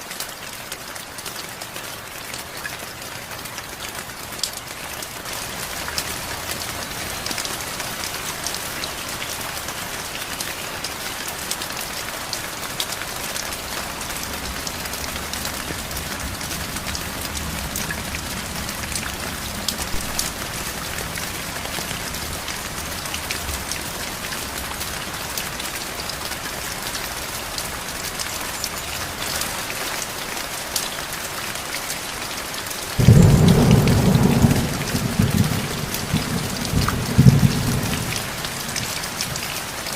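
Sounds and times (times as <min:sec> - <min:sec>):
heavy rain: 0:00.0 - 0:39.9
loud thunder clap: 0:33.0 - 0:38.3
distant thunder rumble: 0:33.0 - 0:38.8.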